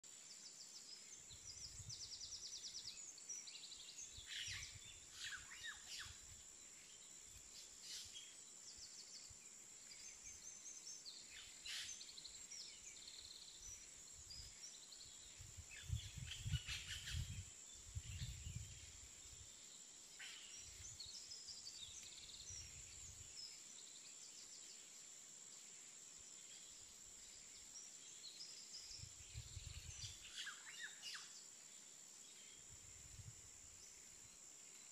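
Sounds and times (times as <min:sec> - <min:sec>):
faint birds chirping: 0:00.0 - 0:34.9.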